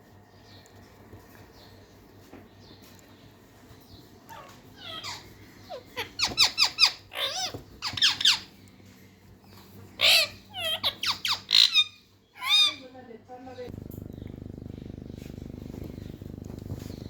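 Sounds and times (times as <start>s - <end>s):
parrot calling: 4.3s - 8.5s, 10.0s - 12.8s.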